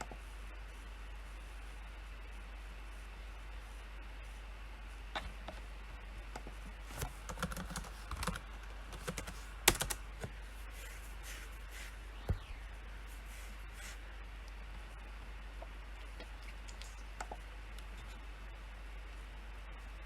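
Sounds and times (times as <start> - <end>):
steady low hum: 0.0 - 20.0
computer keyboard typing: 6.4 - 11.4.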